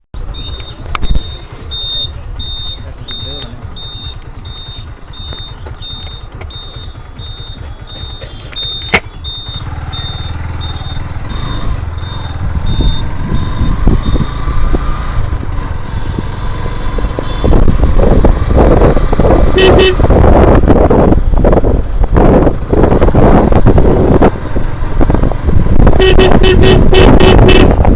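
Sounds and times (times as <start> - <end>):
motorcycle engine and road rumble: 0.2 - 27.9
short high beeps: 0.4 - 14.4
sharp click: 8.0 - 9.2
wind buffeting microphone: 10.3 - 27.9.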